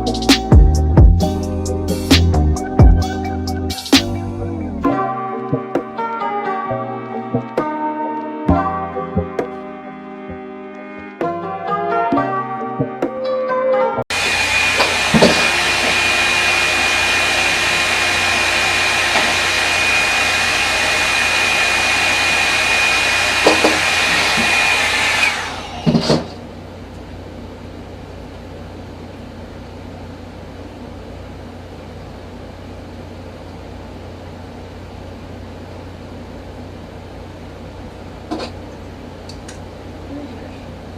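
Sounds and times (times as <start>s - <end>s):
hair dryer brush whining: 14.1s - 26.4s
hair dryer winding down: 14.1s - 26.4s.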